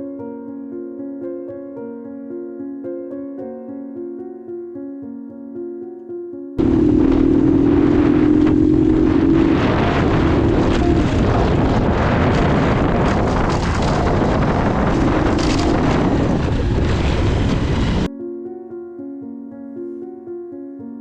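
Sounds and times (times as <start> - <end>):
soft piano music: 0.0 - 16.6, 18.0 - 21.0
motorcycle engine running: 6.6 - 18.1
wind buffeting microphone: 6.6 - 18.1.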